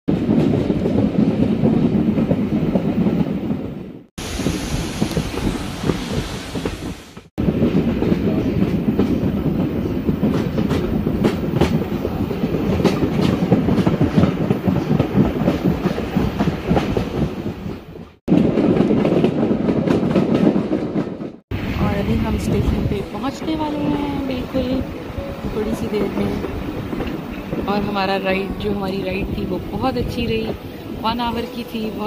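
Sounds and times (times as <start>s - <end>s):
clickety-clack over rail joints: 0.1s - 3.8s, 5.0s - 21.4s
train wheels rumbling on rail: 0.1s - 32.0s.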